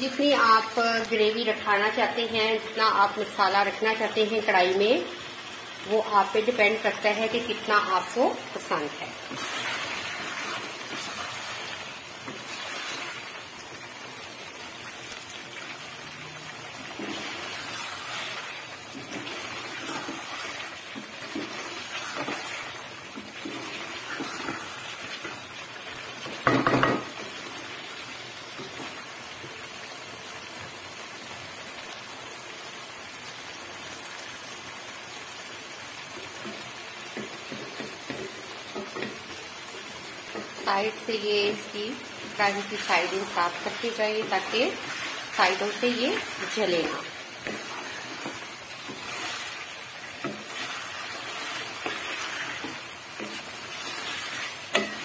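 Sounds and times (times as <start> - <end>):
gravy sizzling in a metal pan: 0.0 - 55.0
wooden spatula scraping pan: 7.4 - 13.4, 16.8 - 25.4, 40.3 - 55.0.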